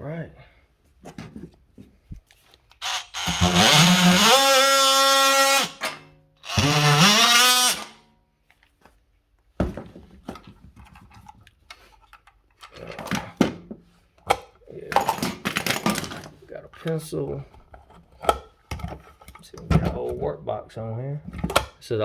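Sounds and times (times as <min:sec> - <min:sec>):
electric drill motor spinning: 0:02.8 - 0:08.0.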